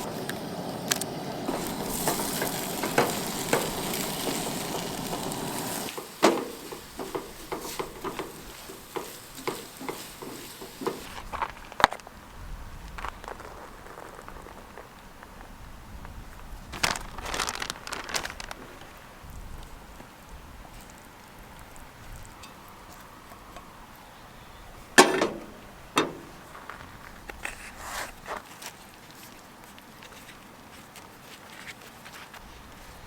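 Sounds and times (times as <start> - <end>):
food sizzling in a frying pan: 0.0 - 11.2.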